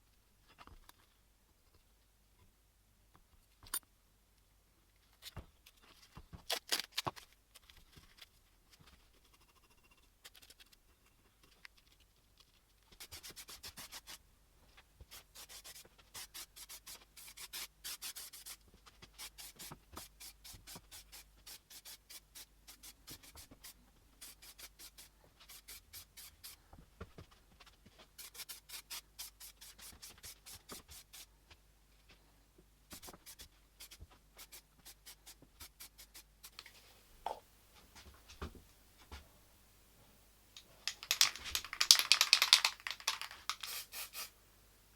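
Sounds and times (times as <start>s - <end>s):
hand abrading metal: 40.6s - 43.7s.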